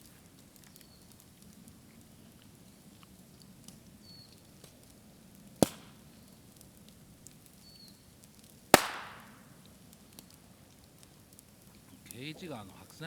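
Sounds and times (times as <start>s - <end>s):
faint fire crackling: 0.0s - 13.0s
bamboo bursting with loud bangs: 5.6s - 6.0s, 8.7s - 9.6s.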